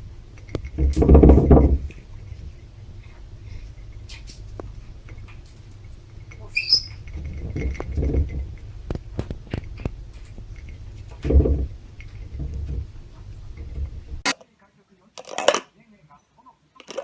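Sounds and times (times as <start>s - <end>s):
parrot chirp: 6.6s - 7.0s.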